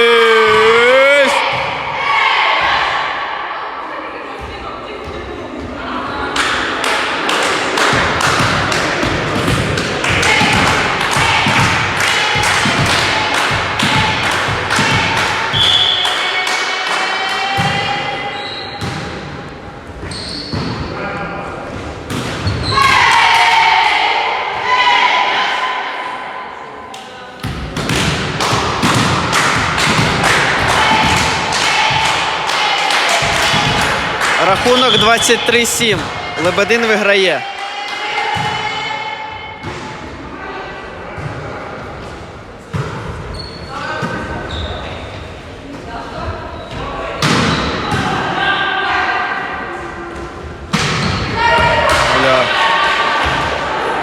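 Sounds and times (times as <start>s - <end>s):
low crowd din: 0.0s - 15.6s, 35.4s - 54.0s
rhythmic crowd clapping: 6.4s - 9.3s, 9.9s - 17.2s, 28.4s - 34.9s.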